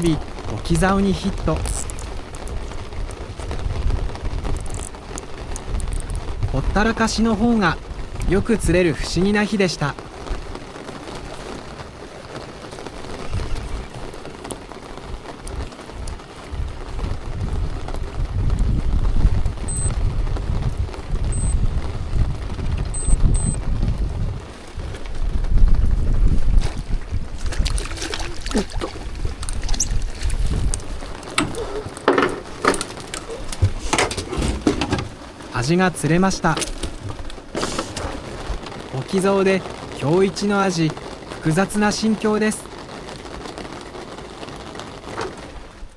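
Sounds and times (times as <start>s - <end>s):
rain on boat roof and water: 0.0s - 45.9s
clicks and knocks from boat gear: 1.6s - 2.6s, 4.5s - 6.3s, 27.4s - 35.2s, 36.5s - 38.4s
low rumbles: 12.8s - 40.1s.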